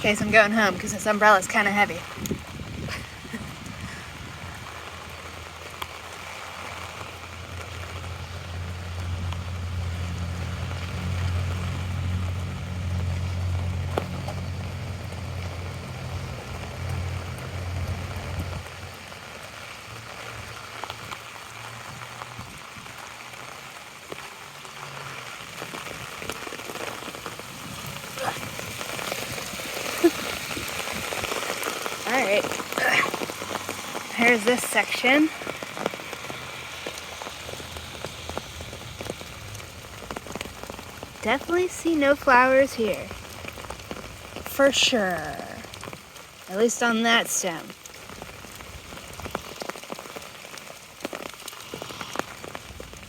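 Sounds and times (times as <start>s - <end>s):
rain pattering on an umbrella: 0.0s - 53.0s.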